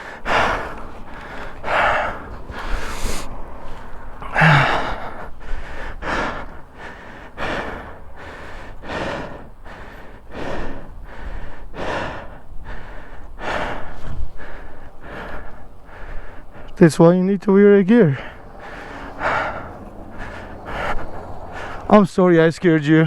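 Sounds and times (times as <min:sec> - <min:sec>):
person breathing heavily: 0:00.0 - 0:22.0.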